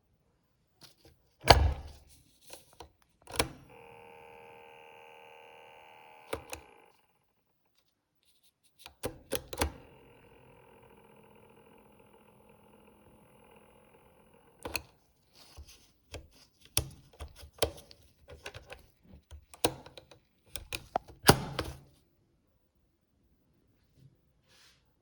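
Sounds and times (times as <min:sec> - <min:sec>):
cassette keys clicking and clunking: 0:01.4 - 0:02.0, 0:03.2 - 0:04.6, 0:06.0 - 0:07.0, 0:08.9 - 0:11.4, 0:12.1 - 0:15.0, 0:16.2 - 0:21.8
cassette mechanism humming: 0:03.2 - 0:07.7, 0:08.8 - 0:21.9.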